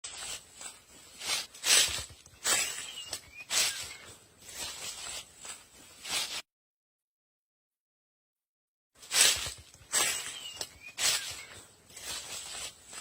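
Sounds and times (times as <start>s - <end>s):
rustling through leaves: 0.0s - 6.4s, 9.0s - 13.0s.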